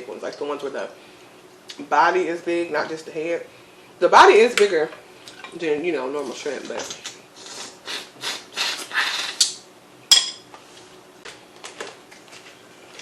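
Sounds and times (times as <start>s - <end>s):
ringing clink on a dish: 10.1s - 10.4s.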